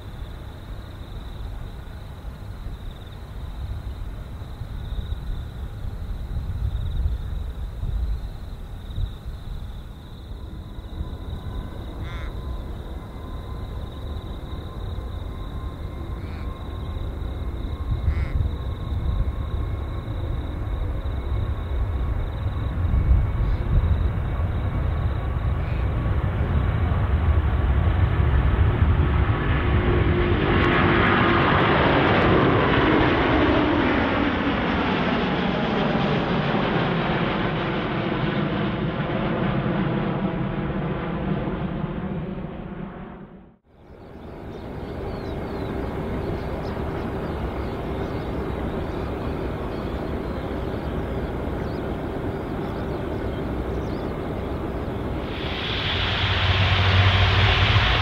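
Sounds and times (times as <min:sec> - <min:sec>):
jet airliner engines roaring: 0:00.0 - 0:58.0
loud hiss: 0:55.2 - 0:58.0.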